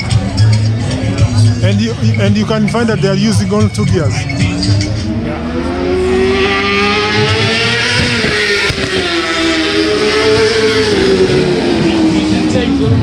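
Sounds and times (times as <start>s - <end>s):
racing motorcycle engine revving: 4.1s - 13.0s.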